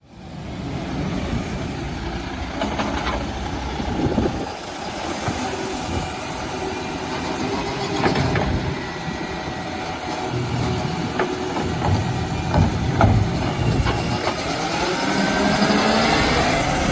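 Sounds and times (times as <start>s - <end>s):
garbage truck engine running: 0.3s - 16.9s
wind buffeting microphone: 3.2s - 16.9s
short knocks: 10.6s - 14.4s.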